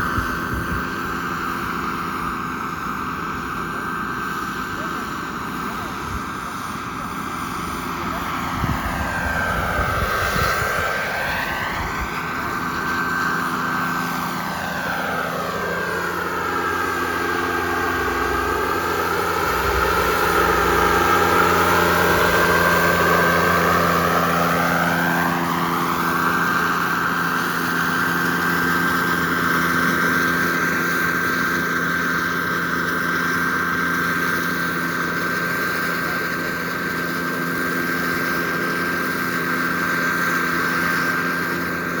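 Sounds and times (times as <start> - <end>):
model jet roaring past: 0.0 - 42.0
steady high whine: 0.0 - 42.0.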